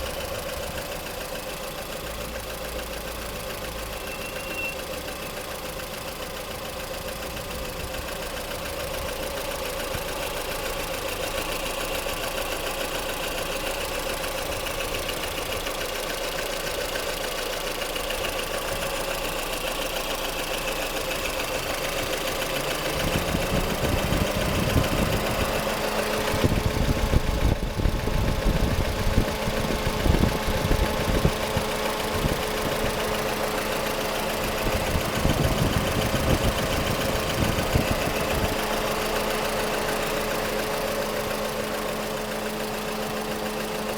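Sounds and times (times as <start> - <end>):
engine running with knocking: 0.0 - 43.9.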